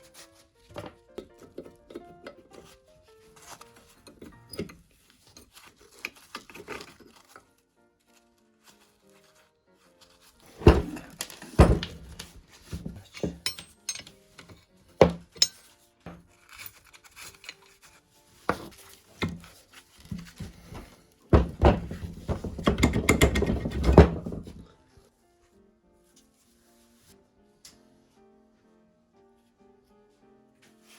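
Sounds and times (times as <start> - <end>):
metal parts rattling: 10.6 - 15.7
knocks on metal parts: 11.6 - 12.2, 21.4 - 24.6.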